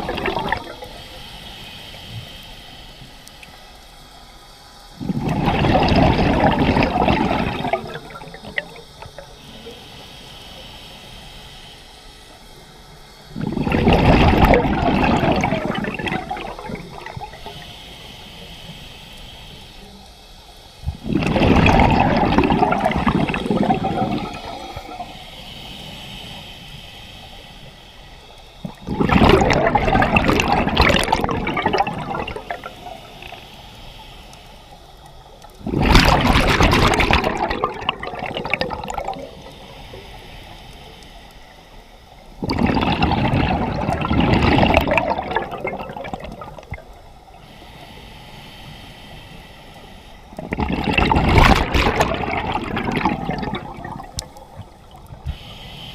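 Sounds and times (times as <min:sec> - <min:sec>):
exhaled bubbles from diver's regulator: 0:00.0 - 0:01.3, 0:05.0 - 0:09.8, 0:13.3 - 0:17.6, 0:20.8 - 0:25.2, 0:28.6 - 0:33.4, 0:35.4 - 0:40.0, 0:42.4 - 0:47.0, 0:50.3 - 0:55.6
quiet hiss: 0:00.0 - 0:42.5, 0:43.2 - 0:55.9.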